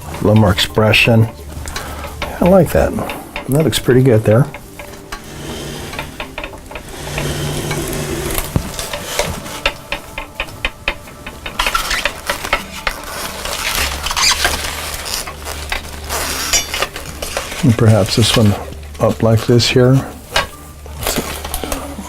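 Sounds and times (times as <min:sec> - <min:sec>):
aluminum foil crinkling: 0:06.0 - 0:22.0.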